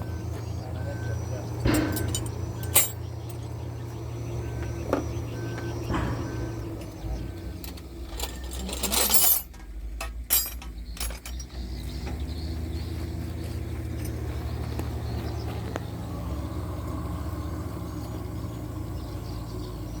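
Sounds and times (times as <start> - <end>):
truck engine idling: 0.0 - 20.0
metallic clicks and clinks: 1.6 - 3.5, 7.6 - 11.6.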